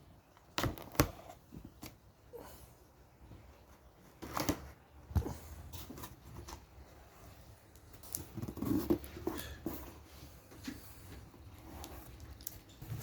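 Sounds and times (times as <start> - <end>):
cardboard rustling: 3.6 - 7.2, 7.9 - 13.0.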